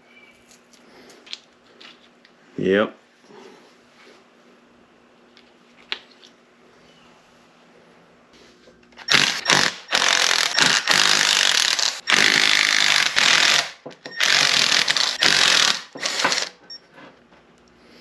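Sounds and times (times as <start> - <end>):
impact gun bursts: 9.0 - 16.6.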